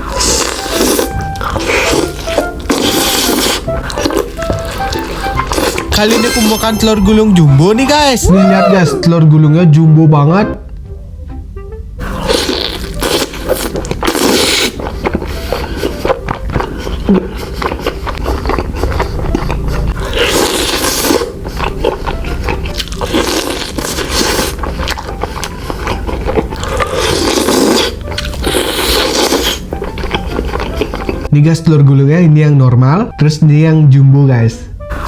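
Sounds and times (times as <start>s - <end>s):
biting and chewing food: 0.0s - 7.0s, 12.1s - 31.3s.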